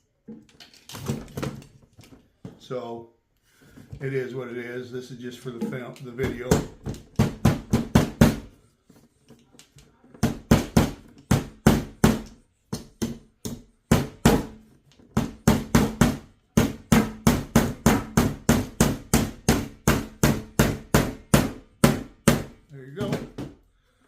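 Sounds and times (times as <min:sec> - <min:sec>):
hammer driving nails into wood: 0:06.2 - 0:08.5, 0:10.2 - 0:23.6
plastic table bouncing: 0:23.0 - 0:23.6.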